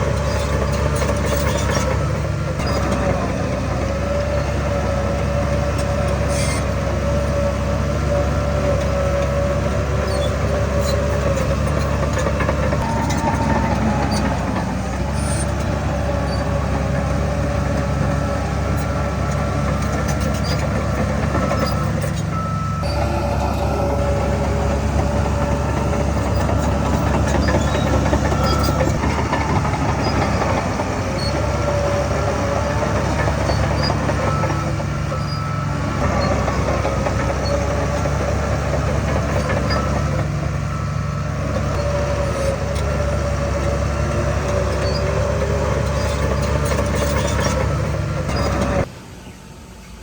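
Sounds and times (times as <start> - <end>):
heavy diesel machinery running: 0.0 - 50.0
wavering whine: 22.3 - 33.6.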